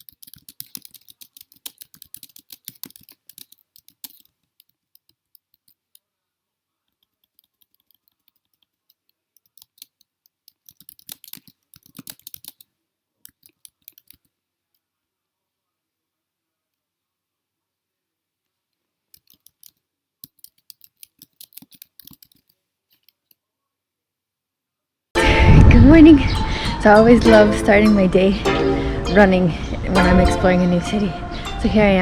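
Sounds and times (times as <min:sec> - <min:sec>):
rapid sharp clicks: 0:00.0 - 0:05.8, 0:07.0 - 0:12.6.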